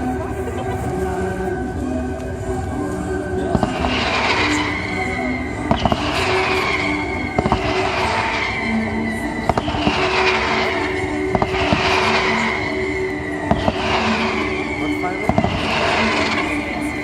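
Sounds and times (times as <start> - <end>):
orchestral music: 0.0 - 17.0
fireworks bangs: 3.5 - 17.0.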